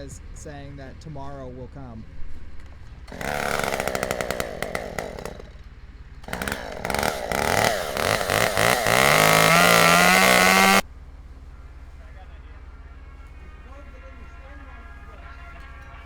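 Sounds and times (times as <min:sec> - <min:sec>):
chainsaw engine revving: 0:02.6 - 0:10.8.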